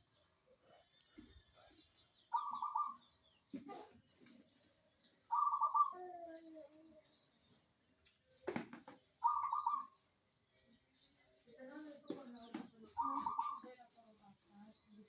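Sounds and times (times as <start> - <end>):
dove cooing: 2.3 - 3.0, 5.3 - 6.0, 9.2 - 9.9.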